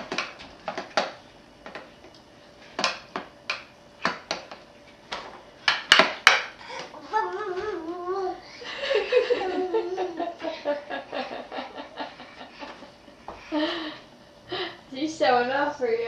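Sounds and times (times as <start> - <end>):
baby sing-song vocalizing: 6.9 - 8.6.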